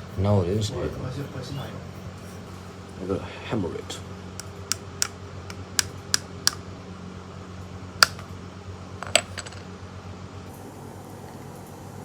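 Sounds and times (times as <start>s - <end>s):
hammer tapping on metal housing: 8.0s - 8.2s.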